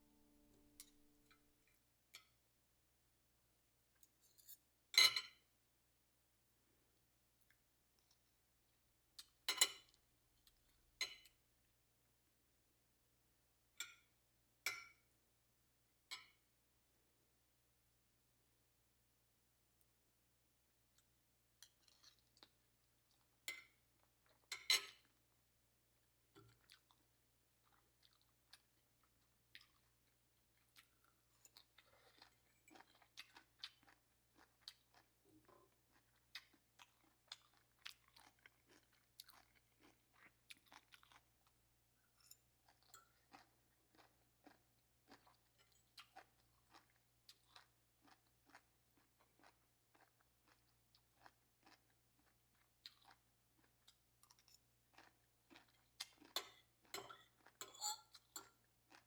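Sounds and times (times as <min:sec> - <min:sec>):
person chewing: 0:29.5 - 0:41.6, 0:42.7 - 0:59.0.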